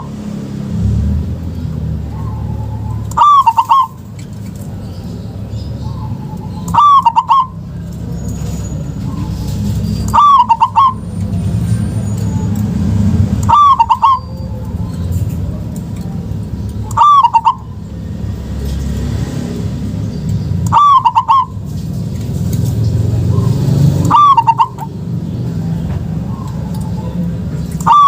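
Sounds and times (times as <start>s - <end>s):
dove cooing: 2.0s - 4.0s, 5.8s - 7.9s, 9.0s - 11.0s, 13.4s - 17.9s, 20.6s - 21.6s, 23.3s - 25.4s, 26.2s - 28.0s.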